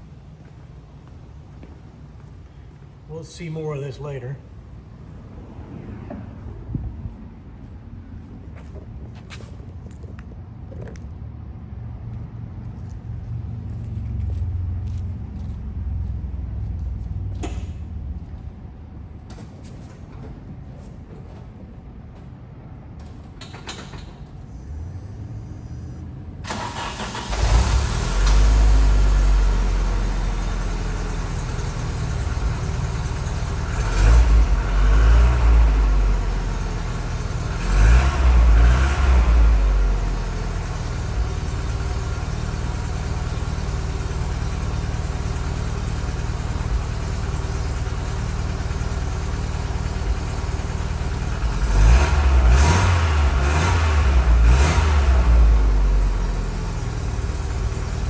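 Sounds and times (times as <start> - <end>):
car engine starting and idling: 23.0 - 58.0.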